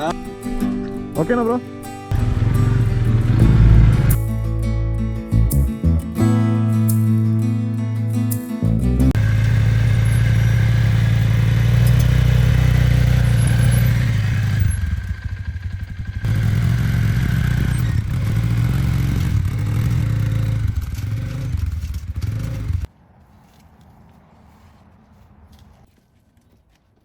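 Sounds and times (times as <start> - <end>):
off-road vehicle engine running: 0.0 - 6.1, 8.7 - 22.9.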